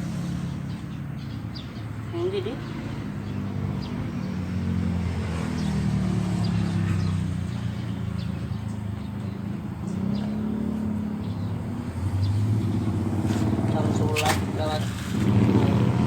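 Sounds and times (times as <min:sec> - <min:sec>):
engine humming: 0:06.4 - 0:16.0.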